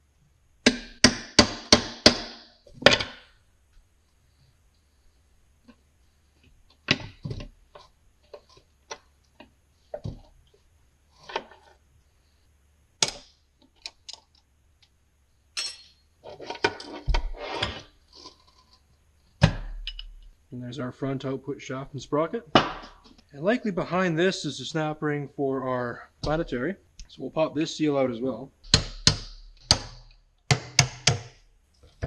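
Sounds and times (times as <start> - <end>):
steel parts clinking: 15.6 - 16.0.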